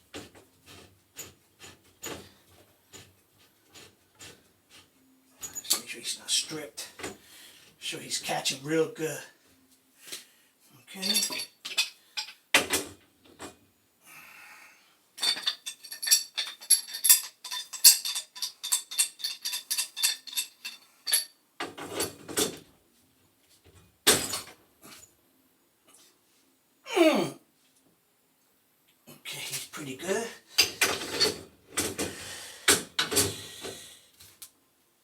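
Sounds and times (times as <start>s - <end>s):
metal tools clinking on fitting: 5.4s - 5.9s, 10.9s - 12.4s, 15.2s - 21.4s, 30.5s - 31.9s.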